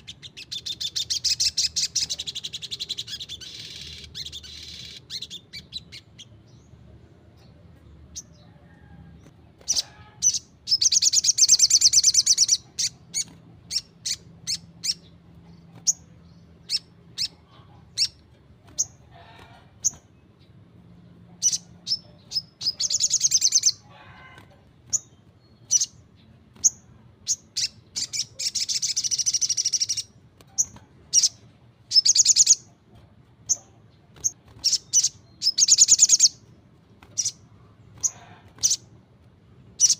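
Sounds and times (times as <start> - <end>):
bird trilling: 0.0 - 6.3, 9.6 - 15.2, 21.4 - 26.0, 26.6 - 32.7, 33.5 - 36.4
bird chirping: 0.0 - 39.9.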